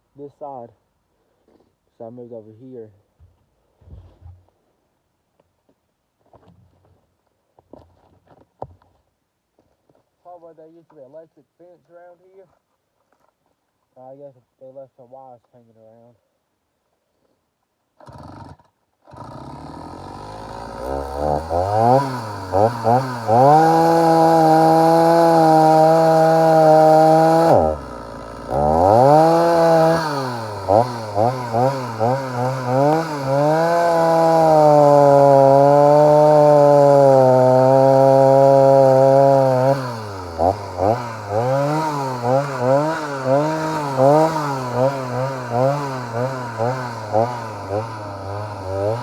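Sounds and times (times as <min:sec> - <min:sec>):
chainsaw cutting wood: 0:18.0 - 0:49.0
chainsaw idling and revving: 0:18.0 - 0:49.0.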